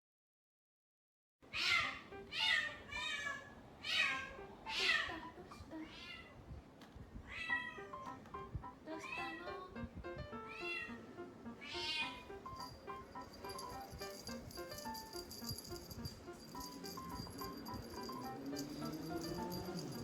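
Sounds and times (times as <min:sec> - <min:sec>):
cat meowing: 0:01.5 - 0:06.4, 0:07.3 - 0:08.0, 0:09.0 - 0:09.6, 0:10.5 - 0:12.4
background music: 0:07.8 - 0:20.0.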